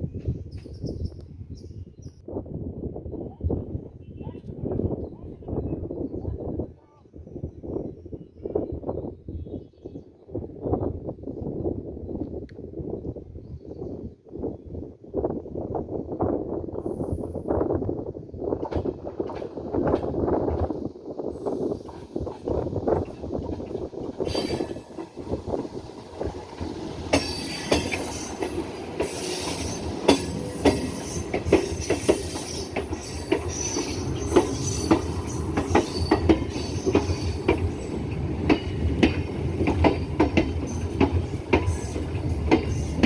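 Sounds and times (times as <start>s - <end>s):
train rumble: 16.9s - 43.0s
train wheel clacks: 21.6s - 43.0s.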